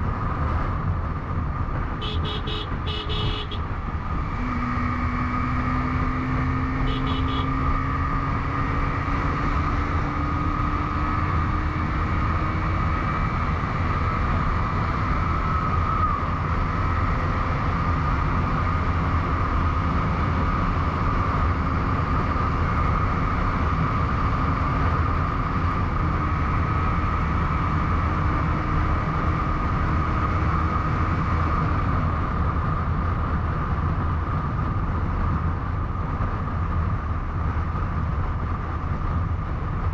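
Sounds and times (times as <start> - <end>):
wind and road noise: 0.0 - 39.9
motorcycle engine running: 0.7 - 8.8.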